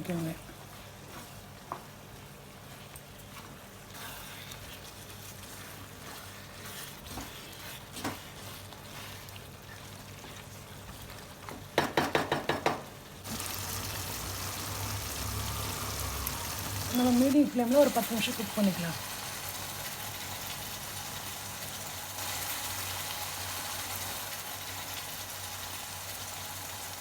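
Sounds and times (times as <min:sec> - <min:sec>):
scraping in a pan: 0:03.4 - 0:11.3
gravy sizzling in a pan: 0:13.0 - 0:27.0.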